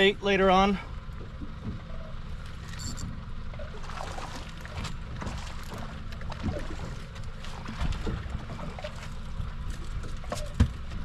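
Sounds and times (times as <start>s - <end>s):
water sloshing against boat hull: 0.9s - 11.0s
light knocks and splashes: 3.5s - 11.0s.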